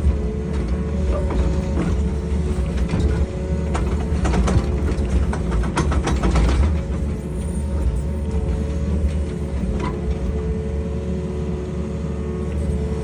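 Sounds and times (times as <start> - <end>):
excavator diesel engine running: 0.0 - 13.0
metallic clanks and knocks: 1.1 - 7.0.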